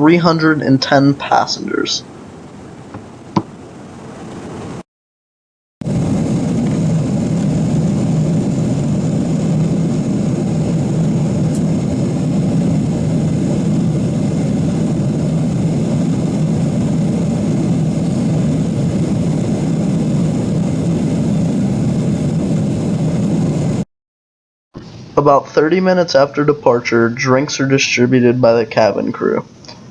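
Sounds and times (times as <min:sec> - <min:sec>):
airplane cabin engine drone: 0:00.0 - 0:04.8, 0:05.8 - 0:23.8.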